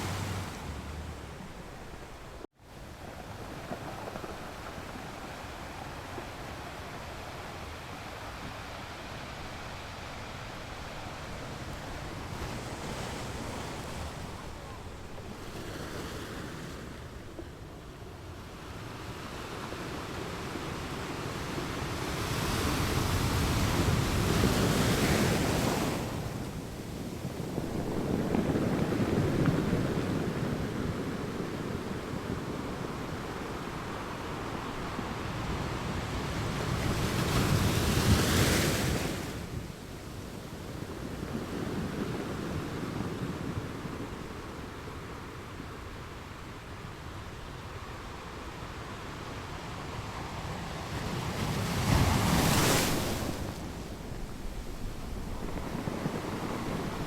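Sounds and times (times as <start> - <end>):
ocean waves breaking: 0.0 - 46.0, 48.4 - 57.0
wind on microphone: 0.0 - 49.0, 49.6 - 57.0.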